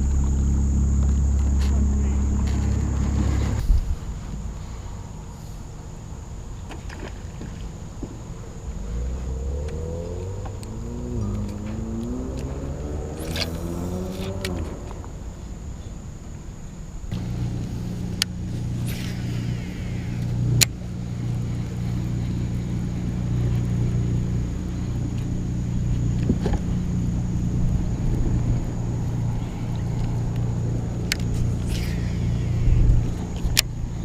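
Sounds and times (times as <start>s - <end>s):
electric motor humming: 17.1s - 34.0s.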